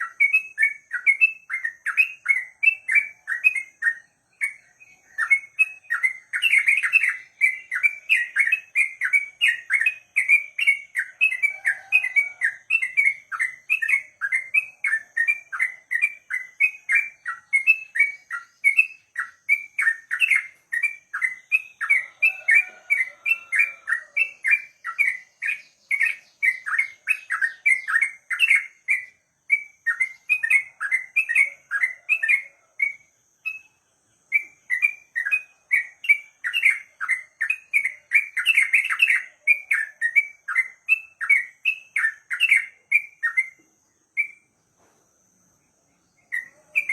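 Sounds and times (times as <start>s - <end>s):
bulbul chirping song: 0.0s - 46.9s.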